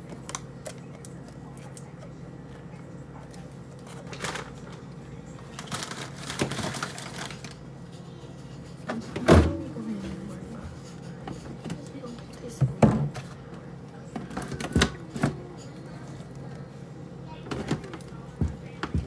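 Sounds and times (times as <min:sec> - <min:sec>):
steady low hum: 0:00.0 - 0:19.0
packages rustling: 0:05.4 - 0:07.6.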